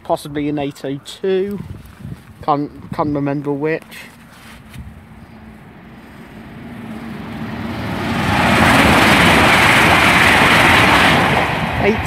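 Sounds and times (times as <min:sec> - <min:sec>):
train passing at speed: 0:04.8 - 0:12.0.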